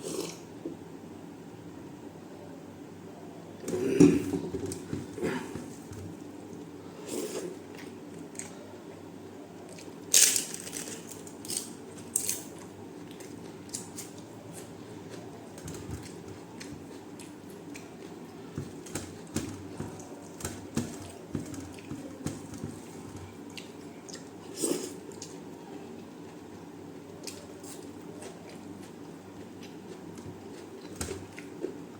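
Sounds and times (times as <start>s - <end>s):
low background hum: 0.0s - 31.9s.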